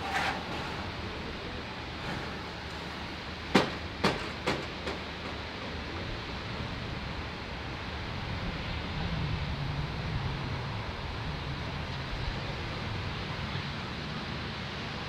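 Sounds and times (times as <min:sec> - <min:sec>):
train rumbling: 0:00.0 - 0:15.0
sharp knocks: 0:03.5 - 0:05.7.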